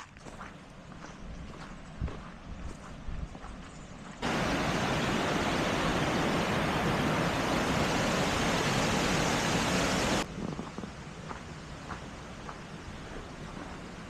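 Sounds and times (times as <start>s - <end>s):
rushing water: 4.2s - 10.3s.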